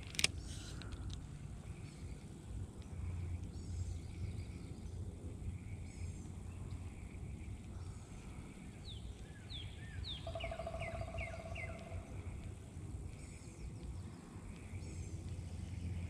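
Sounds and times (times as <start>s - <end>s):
low steady background rumble: 0.0s - 16.0s
faint high bird chirps: 8.8s - 12.4s.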